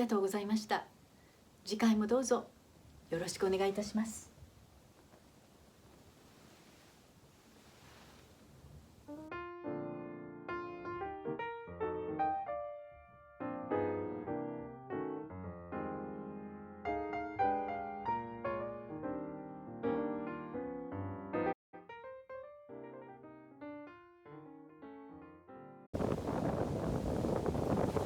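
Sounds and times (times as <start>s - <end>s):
gentle piano music: 9.1s - 28.0s.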